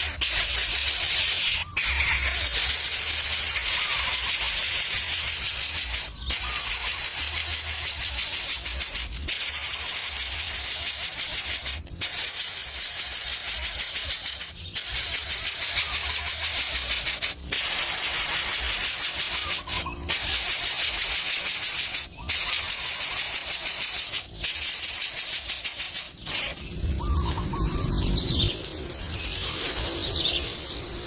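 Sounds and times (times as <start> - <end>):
high-pitched hiss: 0.0 - 31.0
bird chirps: 18.2 - 23.6, 25.8 - 30.6.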